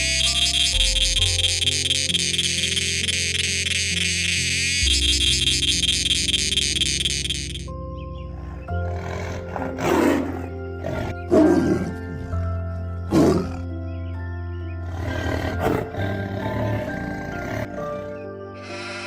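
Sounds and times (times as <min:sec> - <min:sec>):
background music: 0:00.0 - 0:19.0
hippopotamus grunting: 0:08.4 - 0:13.8, 0:14.8 - 0:18.2.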